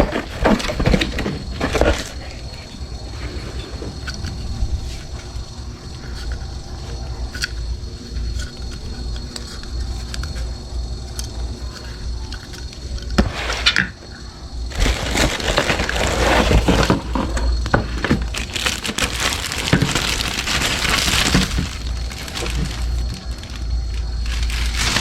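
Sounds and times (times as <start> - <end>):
steady low hum: 0.0 - 25.0
dense crackling and clicking: 14.6 - 25.0.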